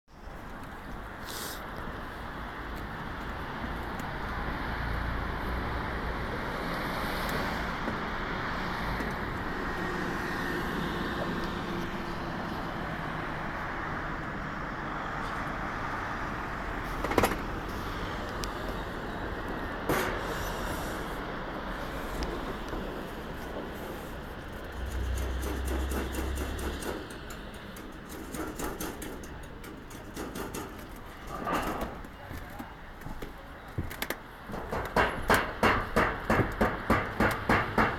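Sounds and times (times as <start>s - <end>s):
road traffic rumble: 0.1s - 37.9s
sharp knocks: 34.5s - 37.9s.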